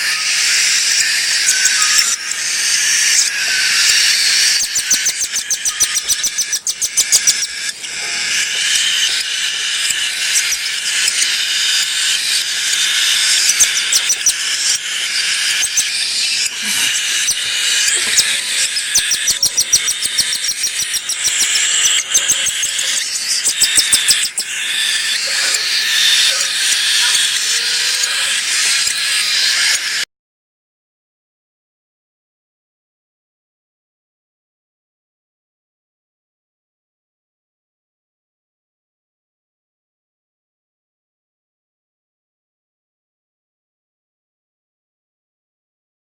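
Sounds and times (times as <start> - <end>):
cockatiel chicks begging: 0.0 - 30.1.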